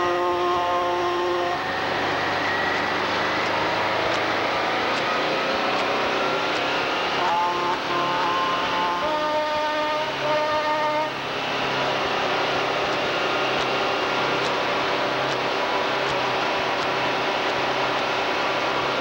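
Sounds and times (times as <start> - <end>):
truck horns: 0.0 - 4.2, 5.2 - 11.3
truck engines running: 1.5 - 9.8, 11.0 - 19.0.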